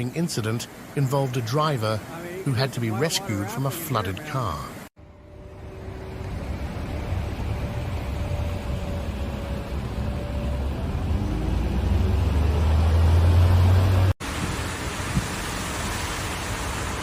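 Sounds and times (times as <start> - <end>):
low vehicle rumble: 5.0 - 17.0.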